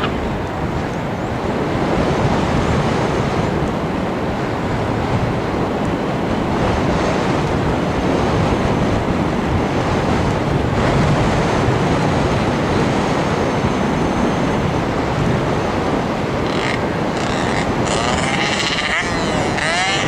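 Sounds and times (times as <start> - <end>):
drone propeller noise: 0.0 - 20.0
wind rushing: 0.0 - 20.0.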